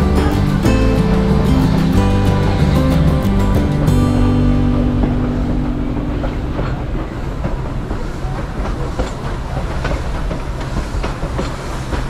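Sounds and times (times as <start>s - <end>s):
train cars rumbling: 0.0s - 12.0s.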